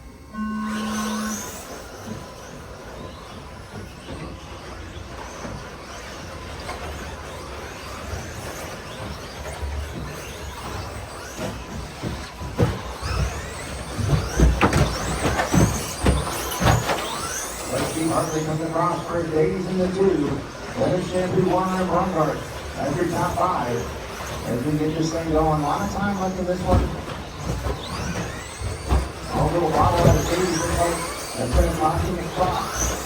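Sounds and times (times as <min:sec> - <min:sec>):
start tone: 0:00.0 - 0:03.2
rc truck motors whining: 0:00.0 - 0:33.0
sharp knocks and thumps: 0:12.0 - 0:17.3.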